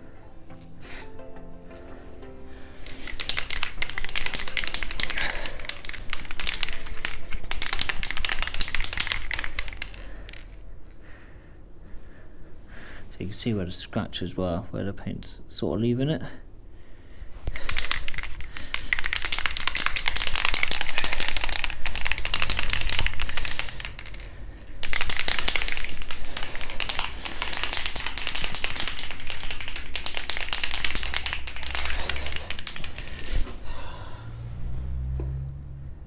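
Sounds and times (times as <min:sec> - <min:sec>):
spray can rattling when shaken: 0:02.8 - 0:10.6, 0:17.5 - 0:33.5.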